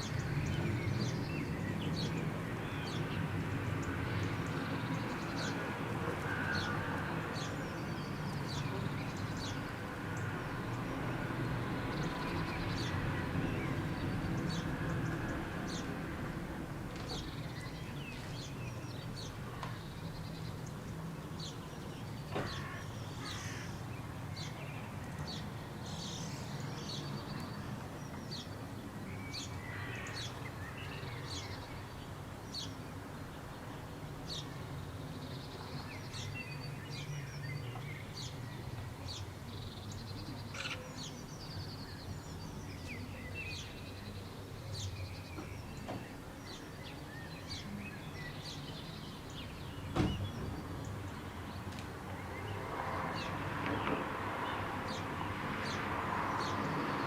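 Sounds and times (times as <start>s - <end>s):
small birds chirping: 17.0s - 57.0s.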